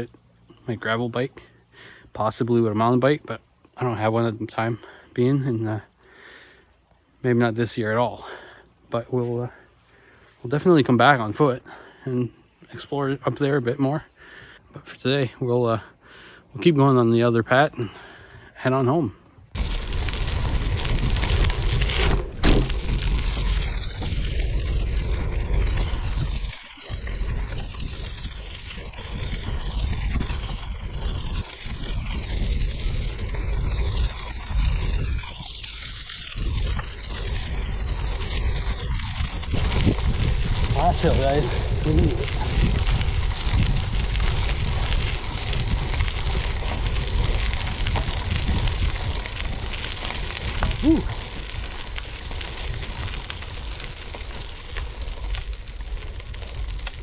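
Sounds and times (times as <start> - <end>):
tyres rolling over gravel: 16.7 - 57.0
wind buffeting microphone: 19.5 - 57.0
sharp bump: 21.8 - 24.2.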